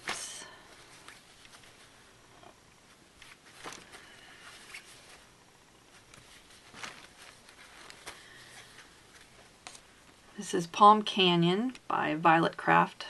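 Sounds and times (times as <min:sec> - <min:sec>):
fabric rustling: 0:00.0 - 0:10.3.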